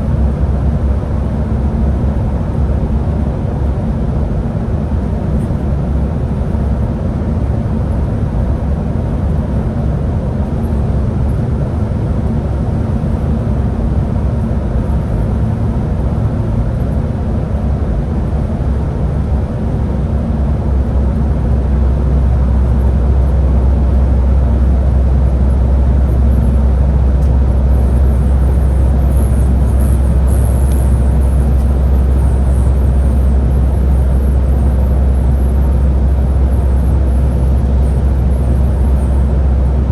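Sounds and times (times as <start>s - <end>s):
bus engine drone: 0.0s - 39.9s
road noise: 9.8s - 39.9s.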